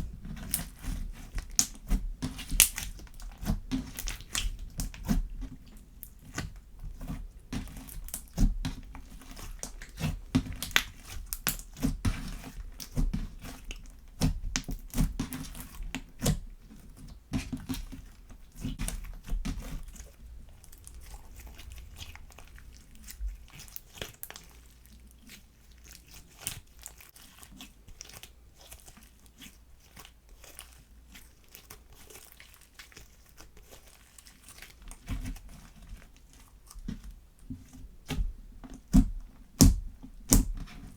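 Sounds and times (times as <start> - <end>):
slime squished by hand: 0.0 - 16.5, 17.4 - 30.8.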